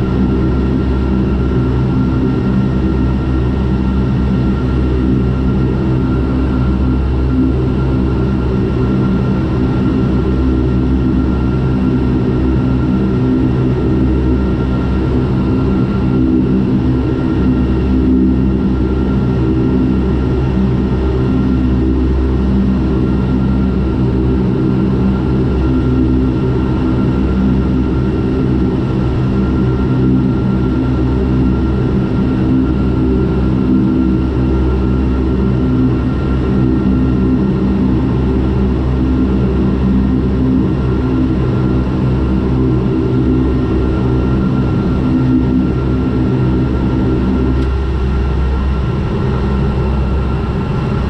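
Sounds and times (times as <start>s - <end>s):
turboprop engines droning: 0.0s - 51.0s.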